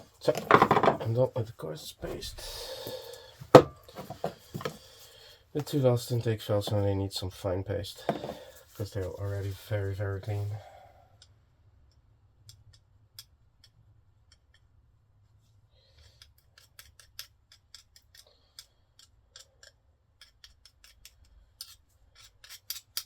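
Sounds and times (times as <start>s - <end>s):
small metal parts clicking: 16.0s - 23.0s.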